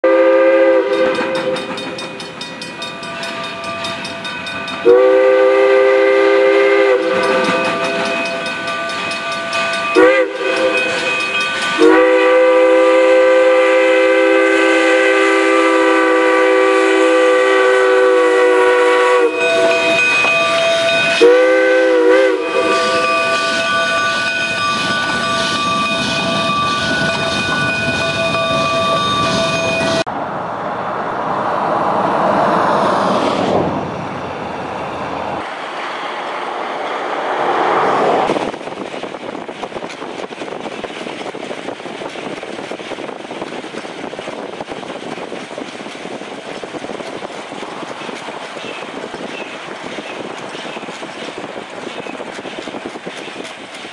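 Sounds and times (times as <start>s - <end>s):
steam locomotive chime whistle: 0.0s - 30.1s
train running: 0.0s - 53.9s.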